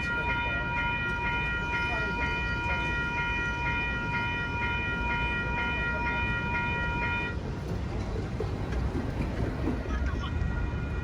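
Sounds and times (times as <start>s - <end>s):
railroad crossing bell ringing: 0.0s - 8.2s.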